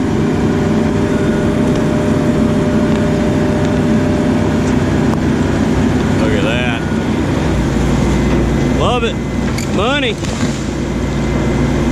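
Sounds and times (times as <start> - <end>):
excavator diesel engine under load: 0.0 - 11.9.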